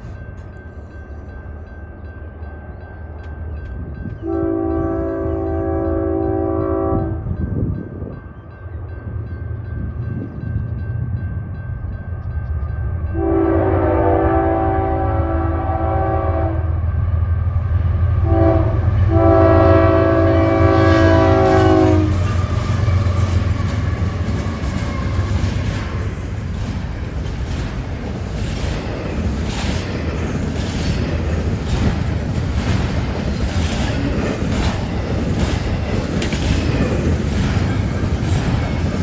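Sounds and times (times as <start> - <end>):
train rumbling: 0.0 - 39.0
train horn blasts: 4.2 - 7.4, 13.1 - 16.9, 18.2 - 25.3.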